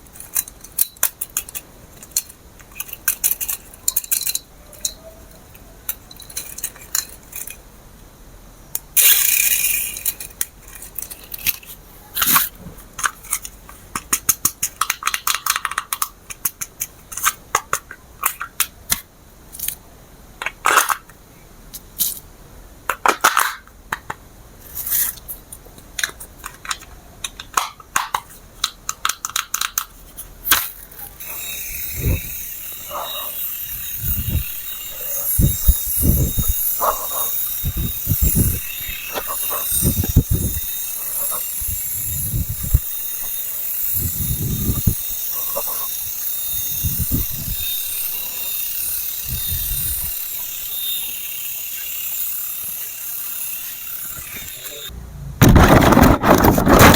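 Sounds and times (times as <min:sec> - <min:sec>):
hard plastic parts clicking: 0:00.1 - 0:07.6, 0:08.7 - 0:19.8, 0:24.9 - 0:31.3.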